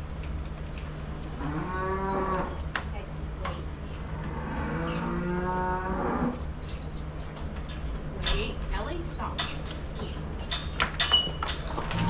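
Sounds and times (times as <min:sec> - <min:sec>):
cow mooing: 0:01.4 - 0:02.6, 0:04.1 - 0:06.4.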